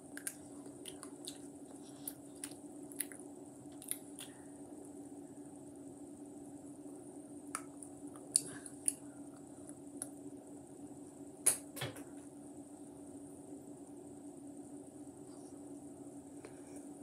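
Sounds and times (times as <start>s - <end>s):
steady low hum: 0.0s - 17.0s
wet mouth clicks chewing: 0.2s - 4.4s.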